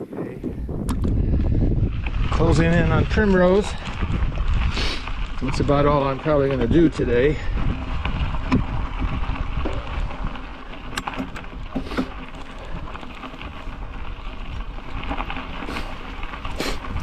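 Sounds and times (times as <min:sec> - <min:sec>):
bicycle road noise: 0:00.0 - 0:17.0
wind rumbling on microphone: 0:00.0 - 0:17.0
bike clicks and knocks: 0:00.8 - 0:01.5, 0:05.2 - 0:17.0.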